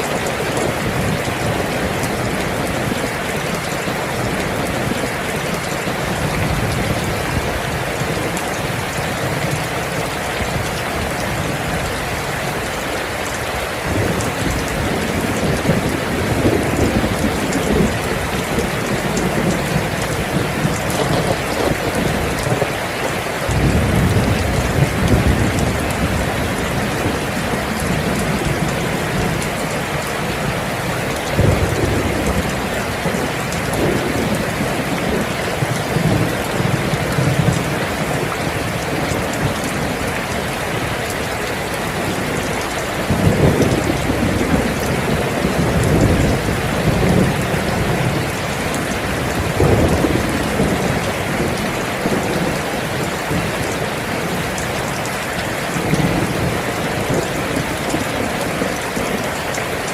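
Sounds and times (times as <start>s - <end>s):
heavy rain: 0.0s - 59.9s
thunder rumbling: 0.1s - 41.2s, 41.9s - 55.0s.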